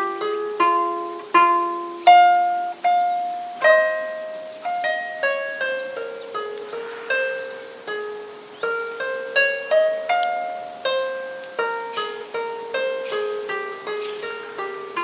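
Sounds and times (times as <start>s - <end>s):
lyre plucked notes: 0.0s - 15.0s.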